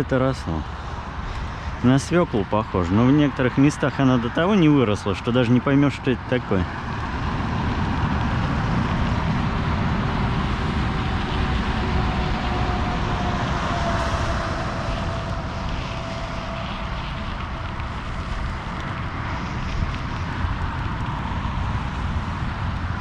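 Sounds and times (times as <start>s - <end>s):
tyres rolling on dirt road: 0.0s - 23.0s
wind on microphone: 0.9s - 23.0s.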